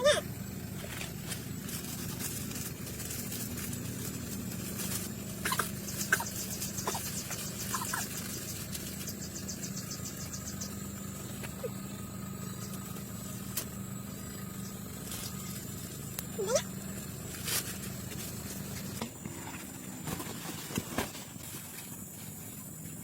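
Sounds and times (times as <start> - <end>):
steady low hum: 0.0 - 23.0
fast insect-like ticking: 1.2 - 19.0.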